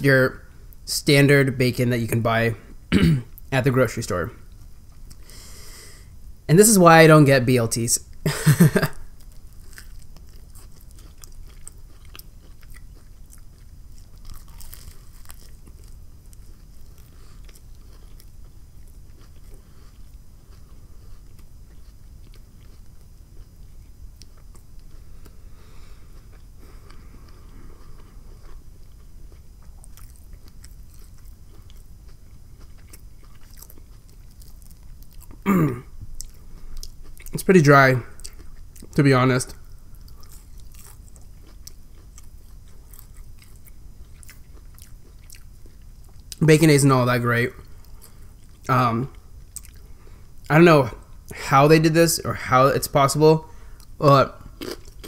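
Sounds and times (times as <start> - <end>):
sandwich crunching: 8.5 - 35.5, 38.2 - 46.4, 54.5 - 55.0.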